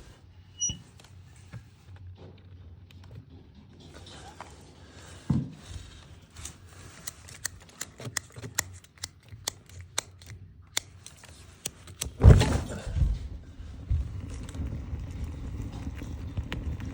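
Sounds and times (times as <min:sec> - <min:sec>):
fire crackling and popping: 0:05.8 - 0:16.9
thump: 0:12.2 - 0:13.3
heavy thud: 0:12.2 - 0:14.1.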